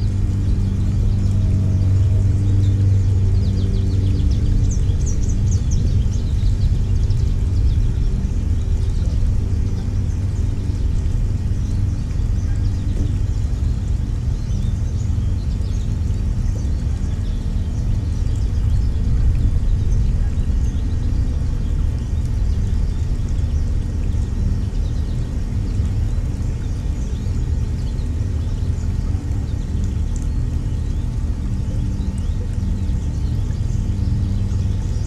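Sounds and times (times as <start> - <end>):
low rumble with hum: 0.0 - 35.0.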